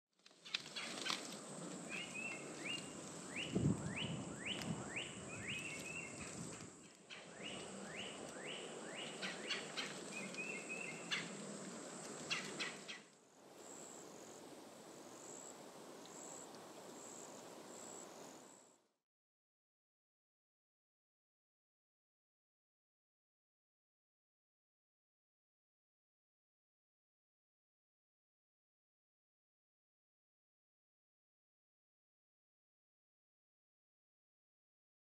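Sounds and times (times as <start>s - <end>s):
birds whistling and chattering: 1.9s - 11.4s, 12.3s - 13.1s.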